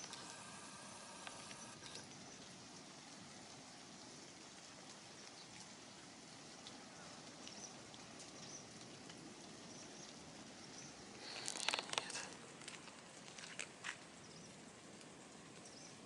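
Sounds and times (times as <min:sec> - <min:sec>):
faint high chirps: 0:00.0 - 0:02.2
faint steady hiss: 0:00.0 - 0:16.0.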